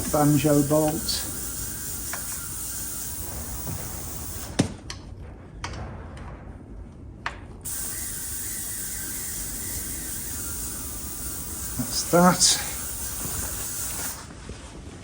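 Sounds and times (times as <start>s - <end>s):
spanner metallic clicks: 0.0s - 4.6s.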